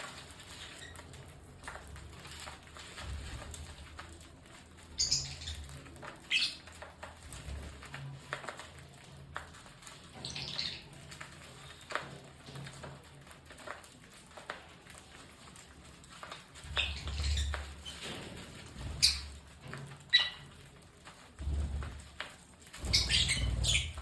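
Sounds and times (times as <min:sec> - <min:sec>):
lovebirds chirping: 0:04.8 - 0:06.8, 0:16.6 - 0:18.0, 0:18.8 - 0:19.4, 0:22.8 - 0:24.0.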